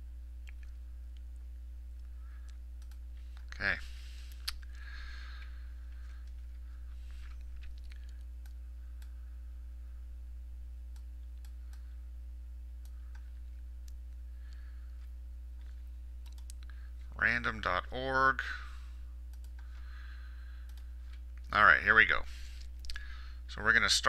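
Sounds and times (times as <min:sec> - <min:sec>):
low electrical hum: 0:00.0 - 0:24.0
keyboard and mouse clicks: 0:15.6 - 0:16.7.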